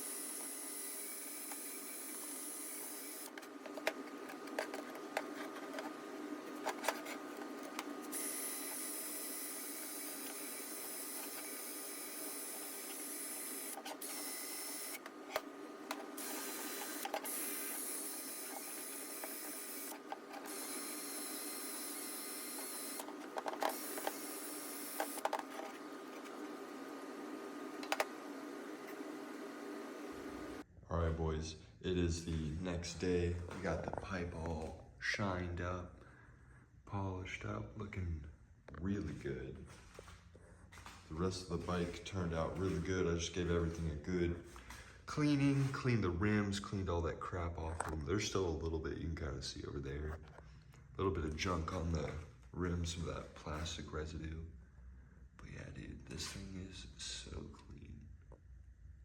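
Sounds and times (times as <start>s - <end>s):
power tool motor whine: 0.0s - 3.9s, 6.6s - 27.2s.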